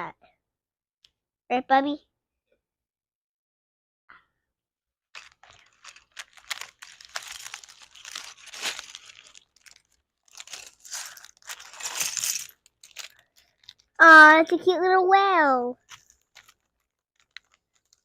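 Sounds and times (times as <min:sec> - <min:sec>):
plastic packaging crinkling: 0:05.2 - 0:14.0, 0:15.8 - 0:18.0.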